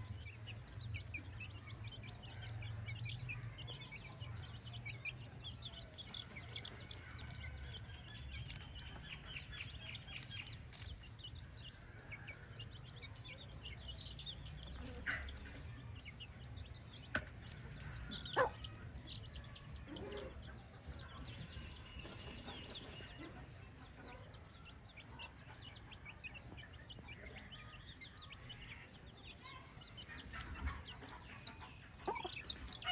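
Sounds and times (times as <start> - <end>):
chickens clucking: 0.0 - 32.9.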